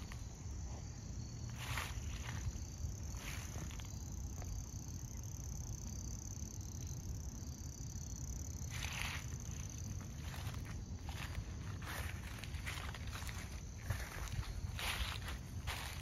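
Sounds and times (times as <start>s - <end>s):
footsteps on woodland trail: 0.0s - 4.6s, 8.6s - 16.0s
crickets chirping: 0.0s - 16.0s.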